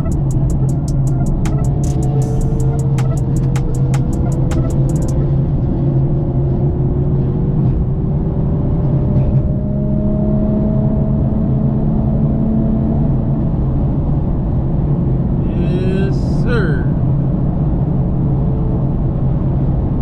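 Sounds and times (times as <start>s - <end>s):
ticking music beat: 0.0s - 5.2s
car engine and road noise: 0.0s - 20.0s.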